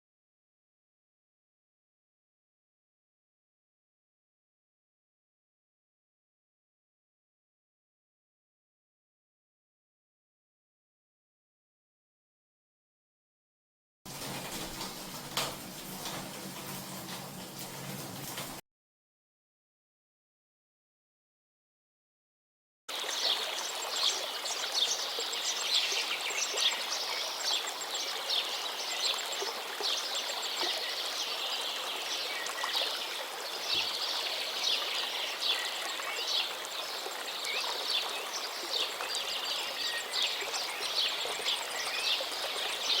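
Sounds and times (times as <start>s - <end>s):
water splashing into drain: 14.1s - 18.6s.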